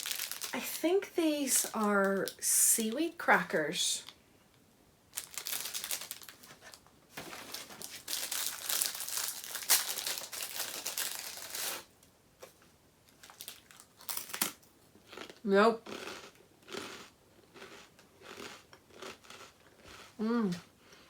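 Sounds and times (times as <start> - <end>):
snack packet crinkling: 0.0 - 0.8, 5.1 - 11.9, 13.1 - 20.1.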